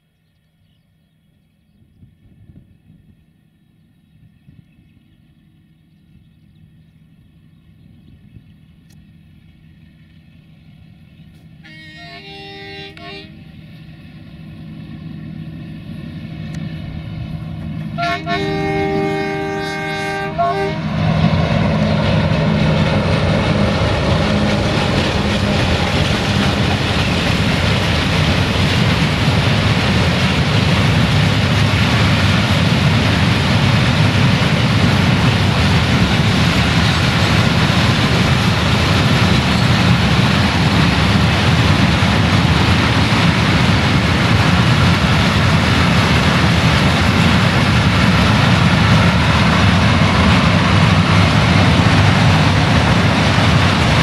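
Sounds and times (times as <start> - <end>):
diesel locomotive engine: 0.0 - 54.0
locomotive horn: 11.6 - 13.7, 17.9 - 27.0.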